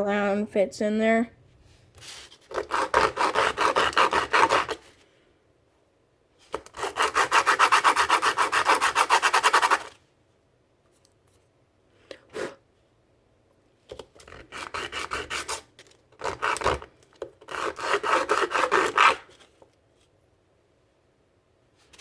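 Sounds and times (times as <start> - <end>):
sandpaper rubbing: 2.0 - 4.9, 6.8 - 10.0.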